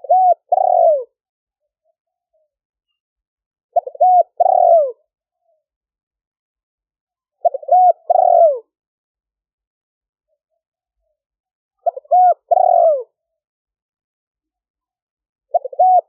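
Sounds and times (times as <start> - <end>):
dove cooing: 0.0 - 1.2, 3.7 - 5.1, 7.4 - 8.7, 11.8 - 13.2, 15.5 - 16.0.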